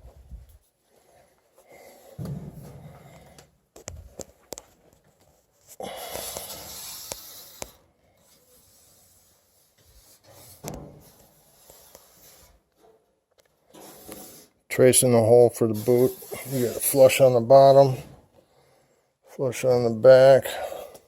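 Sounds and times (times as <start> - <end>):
rubbing and scraping: 13.7 - 18.0.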